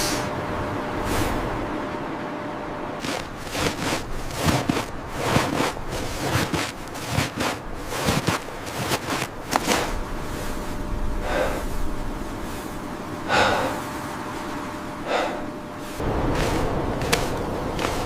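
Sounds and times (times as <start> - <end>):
heavy gasping breaths: 11.2 - 11.8, 13.2 - 13.9, 15.0 - 15.6.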